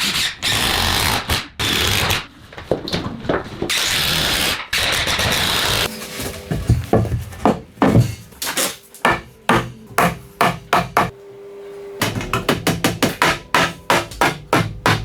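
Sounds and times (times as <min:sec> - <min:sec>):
hammer striking: 0:05.9 - 0:11.2, 0:12.0 - 0:15.0.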